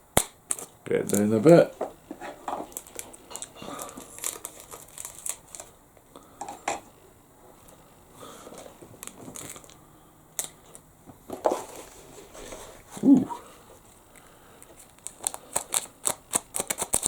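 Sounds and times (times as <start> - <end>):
plastic sachet crinkling: 0.5 - 1.6, 2.7 - 5.8, 8.5 - 9.8, 14.8 - 17.0.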